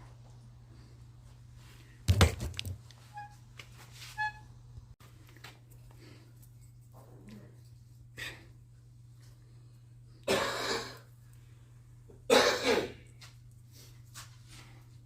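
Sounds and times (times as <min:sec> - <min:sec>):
steady low hum: 0:04.5 - 0:15.0
person coughing: 0:10.3 - 0:11.1, 0:12.3 - 0:13.1.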